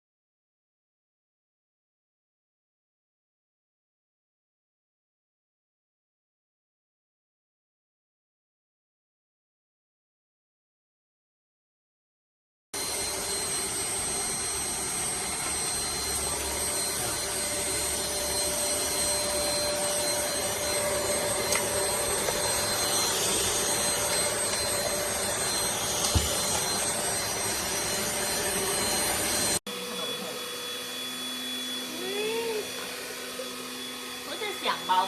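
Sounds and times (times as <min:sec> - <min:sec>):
handheld vacuum cleaner whining: 0:12.8 - 0:35.0.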